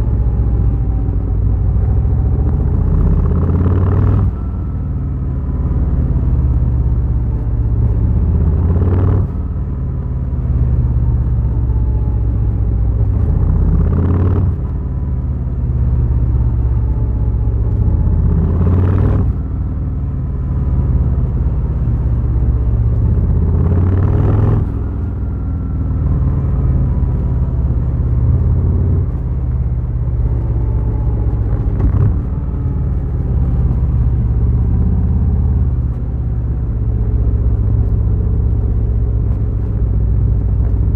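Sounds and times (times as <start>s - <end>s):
motorcycle engine rumbling: 0.0s - 40.9s.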